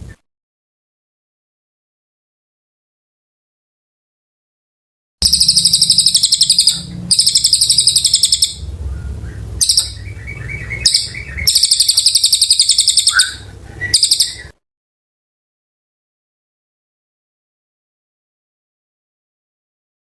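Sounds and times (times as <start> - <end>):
bird singing high trills: 5.2 - 14.5
steady low hum: 5.2 - 14.5
soft bird twittering: 5.2 - 14.6.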